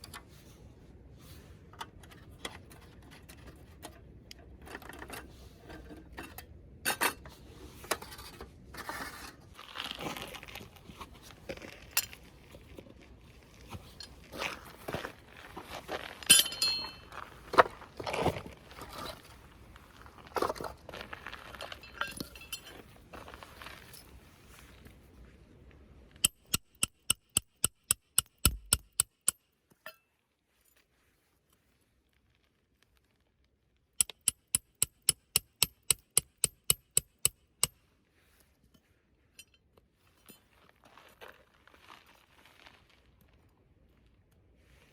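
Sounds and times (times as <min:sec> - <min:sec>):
ringing clinks of hard objects: 0:16.3 - 0:17.0.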